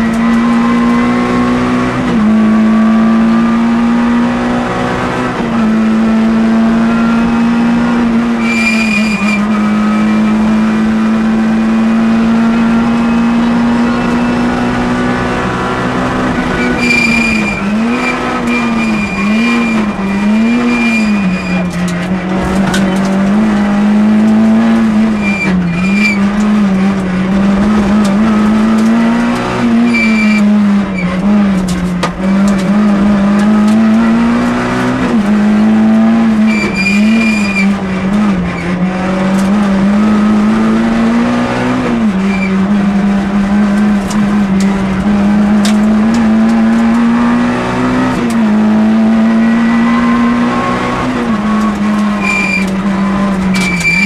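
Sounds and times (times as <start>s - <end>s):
rally car engine revving: 0.0s - 54.0s
high tyre squeals: 8.3s - 10.4s, 16.4s - 23.1s, 24.5s - 26.8s, 28.0s - 31.6s, 36.2s - 37.8s, 41.8s - 42.8s, 49.5s - 54.0s.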